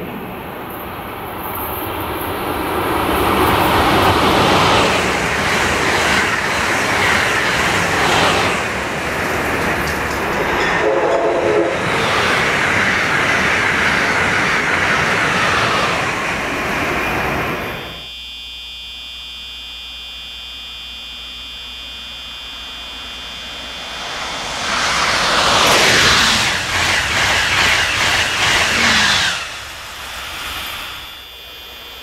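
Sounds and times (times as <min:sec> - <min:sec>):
high-speed train passing: 0:00.0 - 0:18.1, 0:23.0 - 0:32.0
train horn note: 0:10.6 - 0:11.9.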